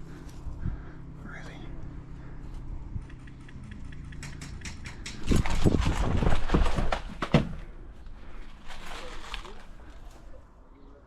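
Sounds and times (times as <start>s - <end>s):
gear rattling: 2.9s - 7.2s
small clicks and knocks: 3.0s - 5.4s
quick footsteps: 3.0s - 10.2s.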